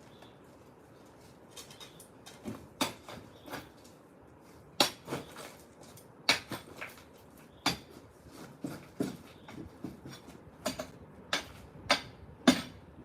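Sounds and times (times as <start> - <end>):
tools knocking on concrete: 8.6 - 12.8.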